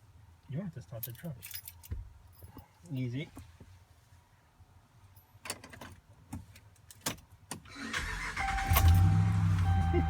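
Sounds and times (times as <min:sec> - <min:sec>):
truck engine starting and idling: 0:07.7 - 0:10.0.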